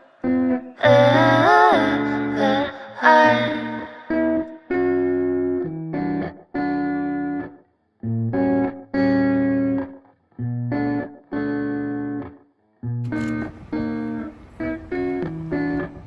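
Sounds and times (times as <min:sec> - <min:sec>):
electric guitar playing chords: 0:00.0 - 0:16.0.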